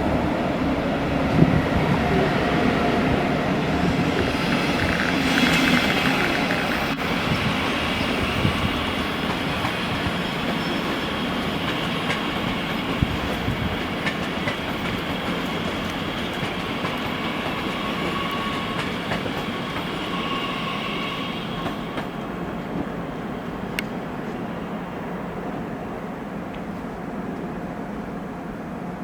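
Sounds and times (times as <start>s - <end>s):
train rumbling past: 0.0s - 29.0s
train wheel clicks: 4.1s - 7.0s, 8.3s - 20.0s.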